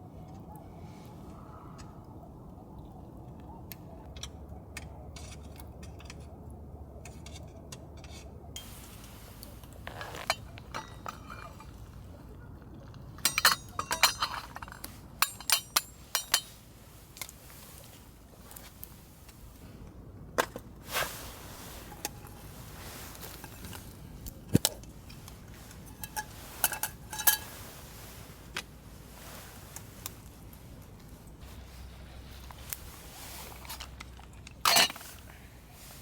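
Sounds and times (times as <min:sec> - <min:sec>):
low steady background noise: 0:00.0 - 0:36.0
cookware and utensils clinking: 0:13.2 - 0:16.6, 0:25.0 - 0:27.7.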